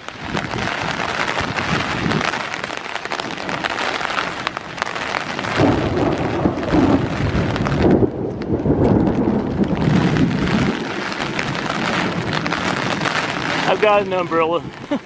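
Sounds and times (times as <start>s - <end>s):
heavy downpour: 0.0s - 15.0s
raindrops ticking on microphone: 0.0s - 15.0s
deep rumble: 4.4s - 13.8s.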